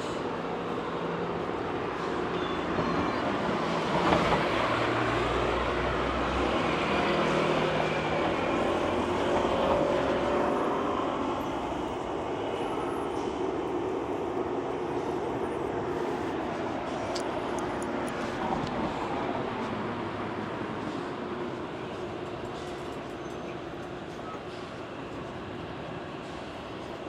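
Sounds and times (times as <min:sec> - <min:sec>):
city noise: 0:00.0 - 0:27.0.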